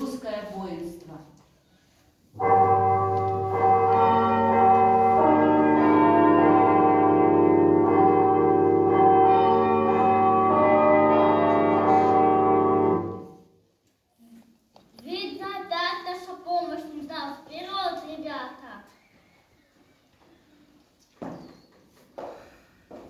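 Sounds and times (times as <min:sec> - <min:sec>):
church bells ringing: 0:02.4 - 0:13.4.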